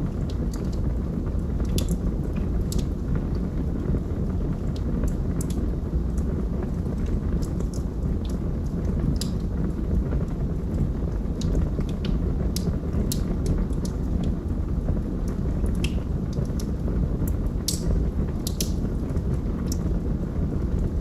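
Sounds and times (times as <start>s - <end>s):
fire crackles and pops: 0.0s - 21.0s
fire rumbling in a fireplace: 0.0s - 21.0s.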